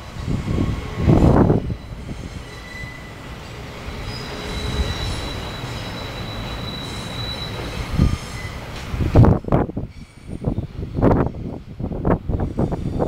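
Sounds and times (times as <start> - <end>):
freight train rumbling: 0.0 - 13.0
high-pitched wheel squeal: 1.5 - 8.7.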